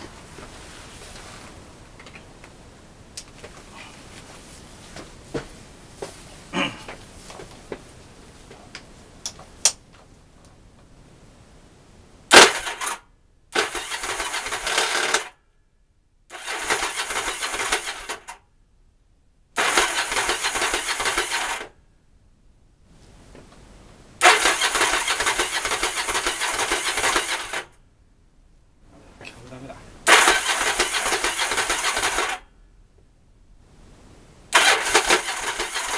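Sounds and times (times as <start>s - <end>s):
motorcycle electric starter cranking: 12.3s - 13.0s, 13.6s - 15.3s, 16.3s - 18.4s, 19.6s - 21.7s, 24.2s - 27.7s, 30.1s - 32.4s, 34.5s - 35.9s.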